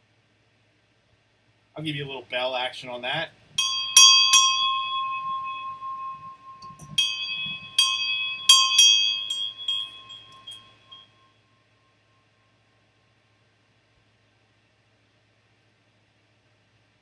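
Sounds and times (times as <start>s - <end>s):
bell ringing: 3.6s - 11.1s.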